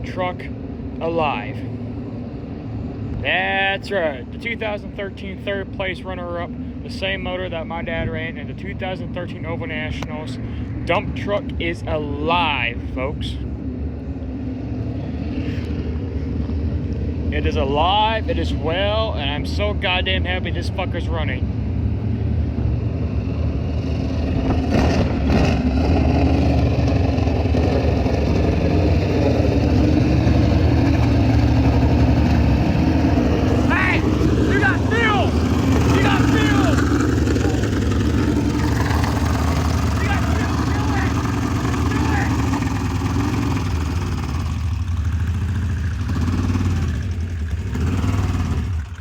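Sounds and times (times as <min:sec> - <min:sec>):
race engine running: 0:24.5 - 0:49.0
brief louder engine noises: 0:30.4 - 0:42.9.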